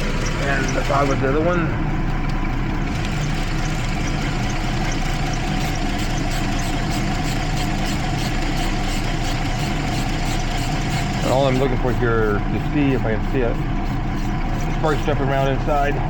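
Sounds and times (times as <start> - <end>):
faint regular ticking: 0.0 - 16.0
misfiring engine idling: 0.0 - 16.0.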